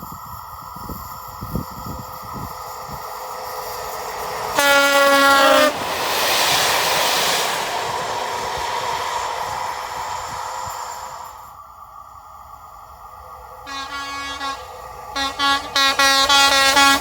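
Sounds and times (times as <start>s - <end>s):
train passing: 0.0s - 17.0s
train horn blast: 4.5s - 5.8s, 13.6s - 17.0s.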